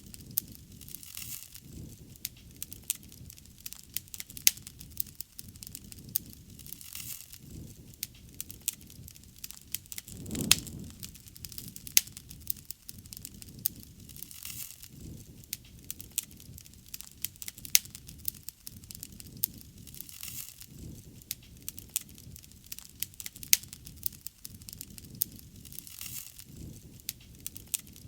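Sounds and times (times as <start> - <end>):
bonfire crackling and popping: 8.3 - 28.0
low rumble: 10.1 - 11.4.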